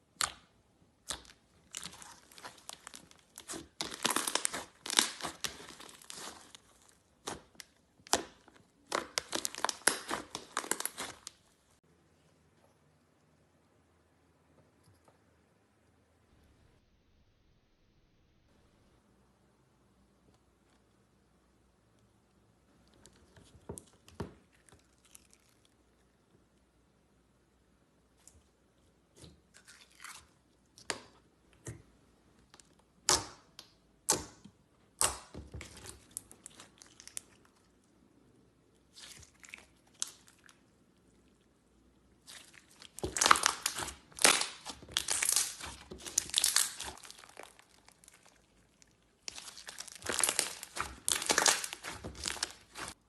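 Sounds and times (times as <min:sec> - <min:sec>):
slime crackling and popping: 0:00.0 - 0:11.8, 0:42.2 - 0:53.0.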